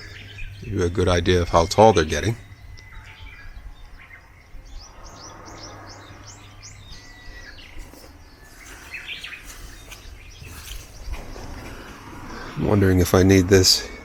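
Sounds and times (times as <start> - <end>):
wild birds chirping: 0.0 - 14.0.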